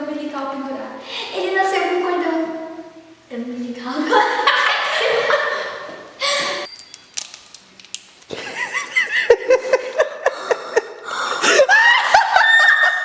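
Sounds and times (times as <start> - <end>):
people laughing hard: 4.2 - 6.7, 8.4 - 13.0.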